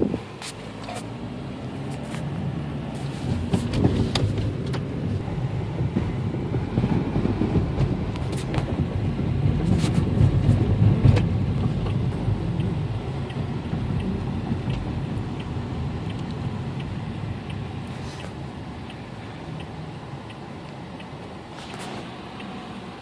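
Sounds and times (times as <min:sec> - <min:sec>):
heavy vehicle engine running: 0:00.0 - 0:23.0
sharp clicks and knocks: 0:03.2 - 0:19.0.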